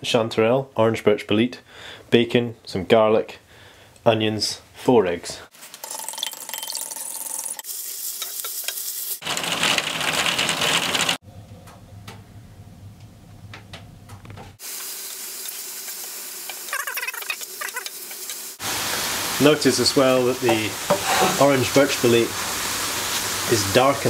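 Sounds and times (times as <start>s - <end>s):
food sizzling in a pan: 5.5s - 9.2s, 14.6s - 24.0s.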